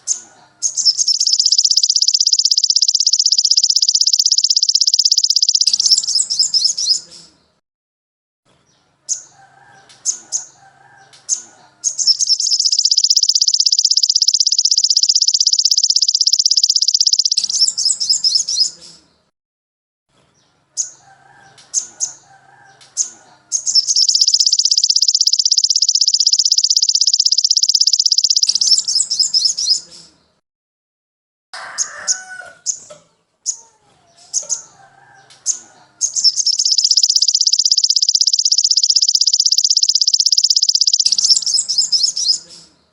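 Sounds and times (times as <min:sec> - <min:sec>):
songbird high trill: 0:00.0 - 0:07.0, 0:11.8 - 0:18.8, 0:23.6 - 0:29.9, 0:36.0 - 0:42.4
sharp high bird chips: 0:00.0 - 0:07.1, 0:11.8 - 0:18.8, 0:23.0 - 0:29.9, 0:35.4 - 0:42.7
faint lower bird chirps: 0:00.0 - 0:07.5, 0:09.1 - 0:19.3, 0:20.8 - 0:30.4, 0:34.2 - 0:42.9.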